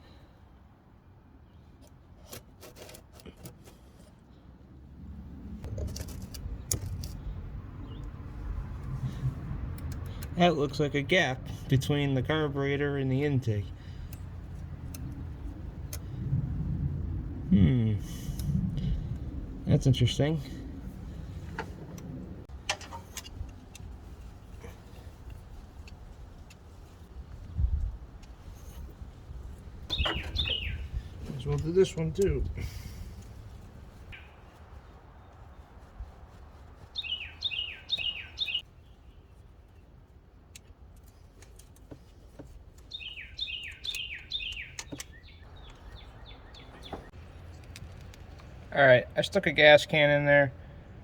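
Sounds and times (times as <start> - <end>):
songbird singing: 7.7 - 8.4, 29.7 - 40.0, 41.8 - 48.7
light clicks and taps: 43.7 - 48.6.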